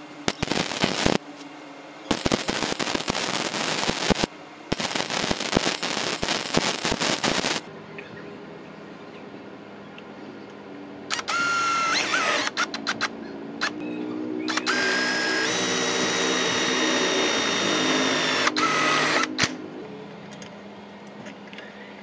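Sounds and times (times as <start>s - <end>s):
power tool motor whining: 11.1s - 12.9s, 14.5s - 19.6s.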